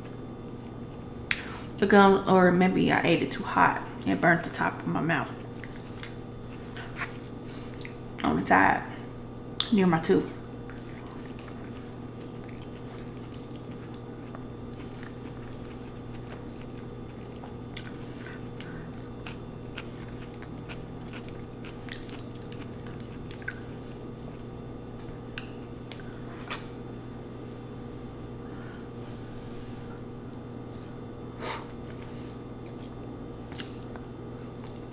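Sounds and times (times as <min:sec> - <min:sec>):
person chewing noodles: 0:05.2 - 0:08.2, 0:10.4 - 0:34.9.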